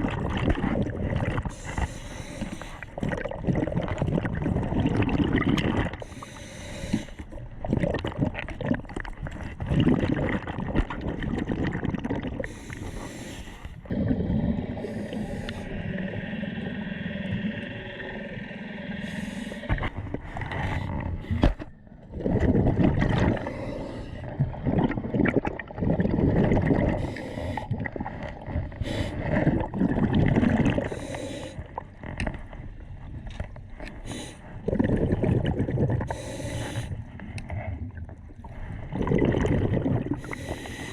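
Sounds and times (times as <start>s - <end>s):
air and bubbles rushing: 0.0s - 40.9s
water gurgling and sloshing: 0.0s - 40.9s
breathing through snorkel: 1.4s - 3.1s, 6.0s - 7.4s, 12.4s - 22.3s, 23.1s - 24.6s, 26.8s - 29.7s, 30.6s - 31.8s, 33.9s - 34.8s, 36.0s - 37.4s, 39.8s - 40.9s.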